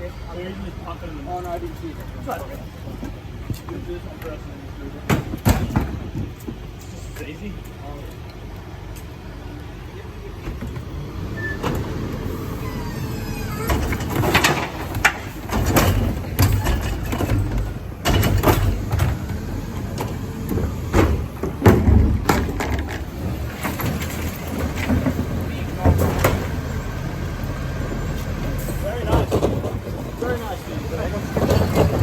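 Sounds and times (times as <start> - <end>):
truck engine rumbling: 0.0 - 32.0
irregular knocks and clatters: 13.7 - 26.6, 29.0 - 30.4, 31.1 - 32.0.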